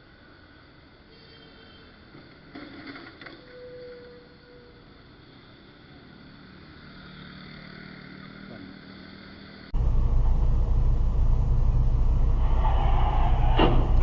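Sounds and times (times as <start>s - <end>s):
faint vehicle hum: 4.2s - 14.0s
vehicle driving rumble: 4.9s - 14.0s.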